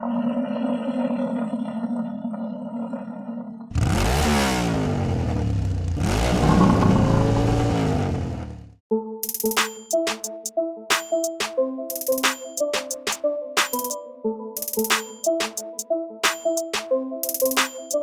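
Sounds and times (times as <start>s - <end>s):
rotary tiller engine revving: 3.7s - 8.6s.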